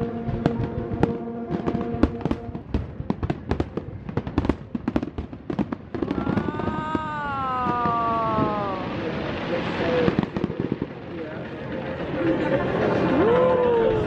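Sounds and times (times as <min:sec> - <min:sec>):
fireworks popping and crackling: 0:00.0 - 0:13.9.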